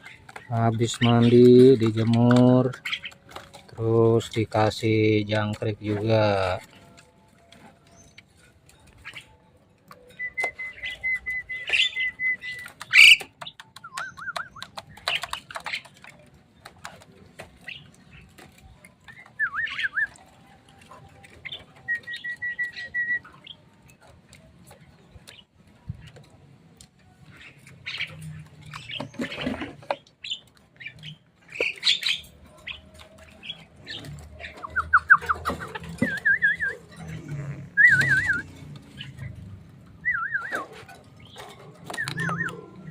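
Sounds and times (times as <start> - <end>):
mynas chattering and clicking: 0.0 - 11.1, 11.7 - 42.9
bird whistles and trills: 7.8 - 16.1, 17.6 - 24.0, 27.3 - 37.0, 37.7 - 42.9.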